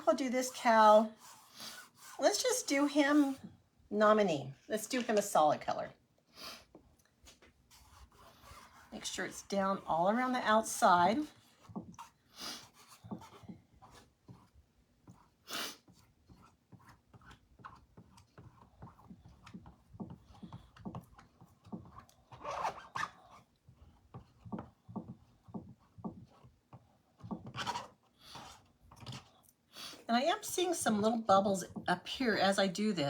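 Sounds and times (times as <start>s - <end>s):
squeegee scraping on chalkboard: 0.0s - 3.5s, 7.7s - 23.4s.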